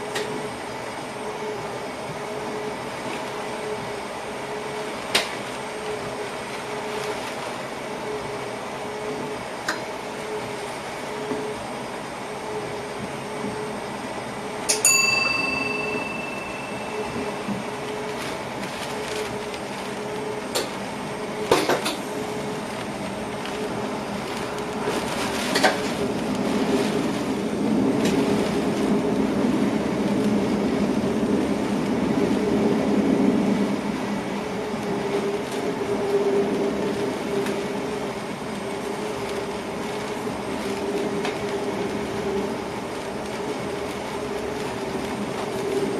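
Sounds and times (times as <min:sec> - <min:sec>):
train running hum: 0:00.0 - 0:45.9
short ringing ping: 0:14.7 - 0:17.4.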